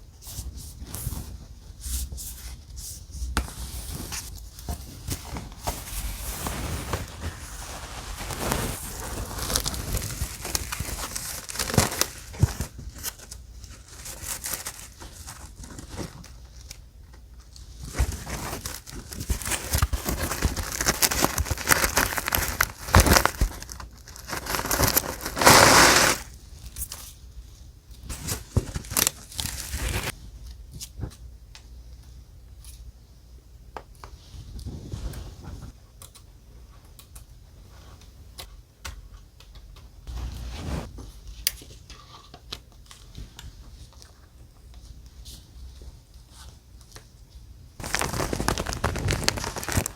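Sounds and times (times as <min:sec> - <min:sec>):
paper rustling and crinkling: 0:03.4 - 0:16.8, 0:17.4 - 0:26.3, 0:28.0 - 0:30.2, 0:47.8 - 0:49.9.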